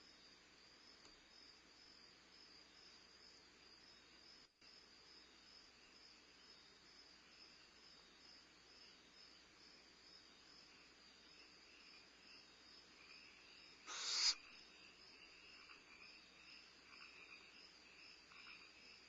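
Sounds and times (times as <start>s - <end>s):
crickets chirring: 0.0s - 19.0s
owl hissing screech: 13.9s - 14.4s.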